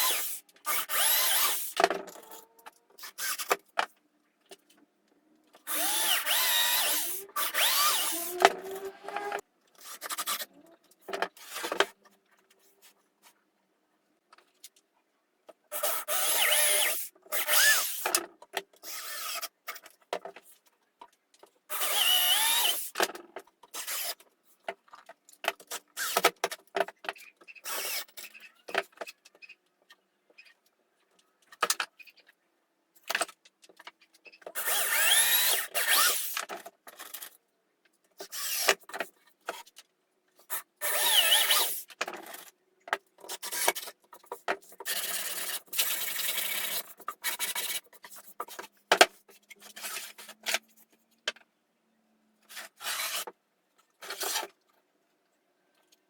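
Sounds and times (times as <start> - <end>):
woodworking tools scraping wood: 6.5 - 10.4.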